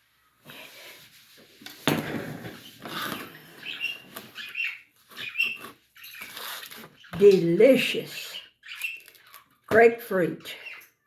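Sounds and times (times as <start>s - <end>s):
small birds chirping: 2.5s - 11.0s.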